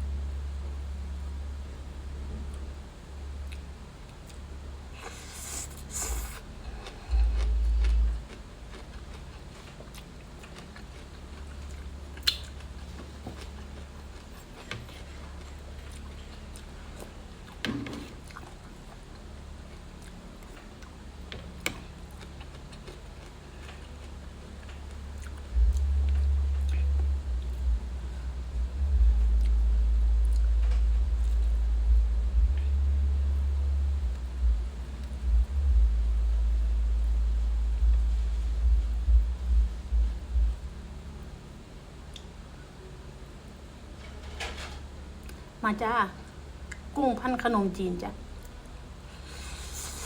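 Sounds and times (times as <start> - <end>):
chewing with wet clicks: 3.4 - 4.5, 5.1 - 12.8, 13.4 - 27.6, 46.7 - 46.9
low rumbles: 6.5 - 8.3, 25.0 - 41.3.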